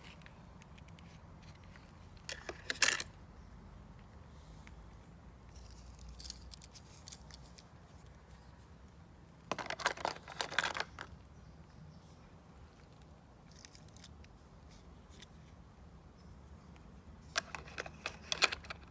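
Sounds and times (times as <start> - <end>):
toy vehicles clicking: 0.0 - 3.2, 5.5 - 7.7, 9.5 - 11.2, 13.4 - 14.3, 17.3 - 18.9.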